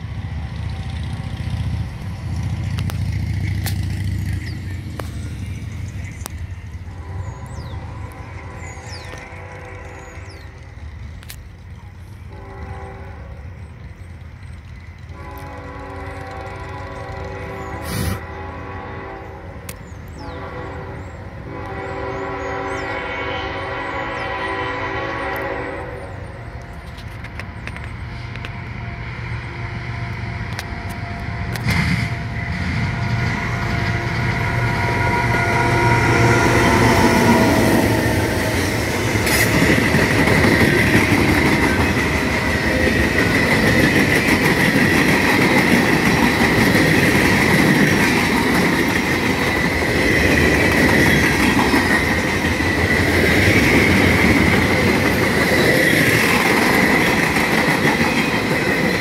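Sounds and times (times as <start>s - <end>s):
freight cars clickety-clack: 0.0s - 12.9s, 26.4s - 59.0s
diesel locomotives running: 0.0s - 59.0s.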